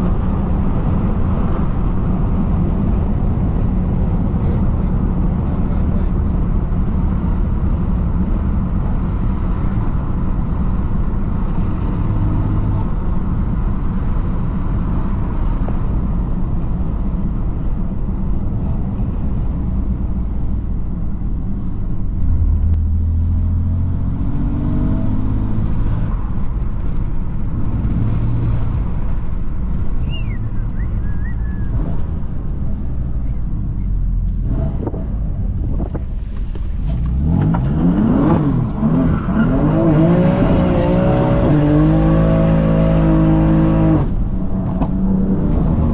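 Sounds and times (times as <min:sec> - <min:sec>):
car engine and exhaust: 0:00.0 - 0:45.9.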